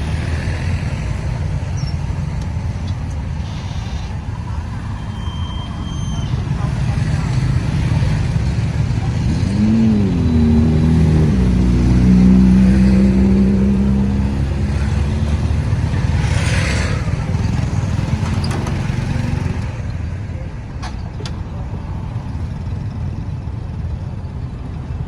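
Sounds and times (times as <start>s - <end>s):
vehicle engine revving: 0.0s - 19.8s
road traffic: 0.0s - 25.0s.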